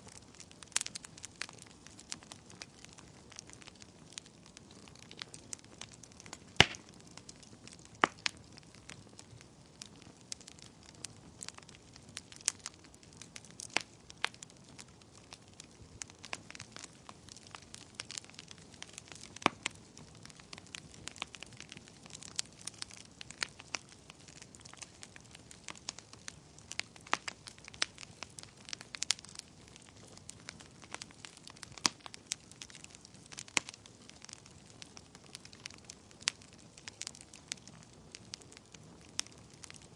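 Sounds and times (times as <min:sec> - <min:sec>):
faint steady hiss: 0:00.0 - 0:39.9
wood fire crackling: 0:00.0 - 0:39.9
sharp pops and snaps: 0:06.2 - 0:08.4.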